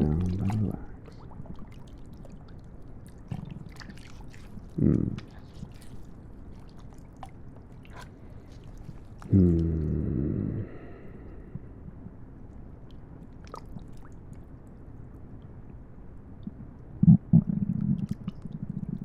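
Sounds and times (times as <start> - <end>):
stomach growl: 0.0 - 1.8, 3.1 - 12.2, 16.4 - 19.0
low gurgles: 0.0 - 19.0.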